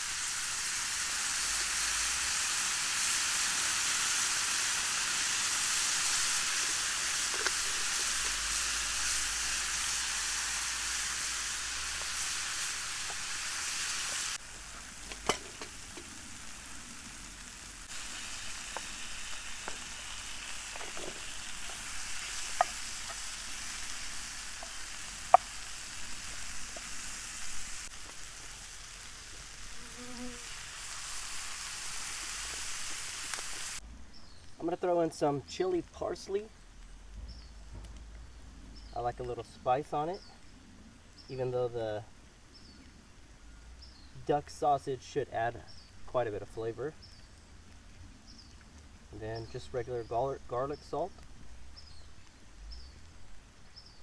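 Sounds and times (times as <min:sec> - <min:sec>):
vegetables sizzling in pan: 0:00.0 - 0:34.4
sharp ticks and pops: 0:05.6 - 0:09.7, 0:10.8 - 0:29.5, 0:33.3 - 0:33.6, 0:36.5 - 0:38.5.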